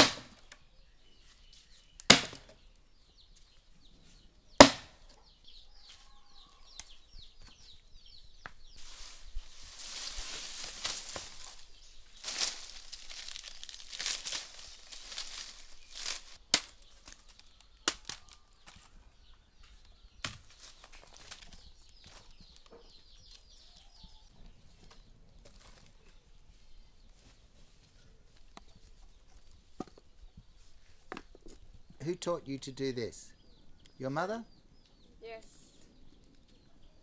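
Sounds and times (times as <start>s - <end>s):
leaves rustling and crinkling: 8.5s - 19.0s, 20.2s - 23.9s, 24.7s - 29.8s
leaves snapping: 9.7s - 18.8s.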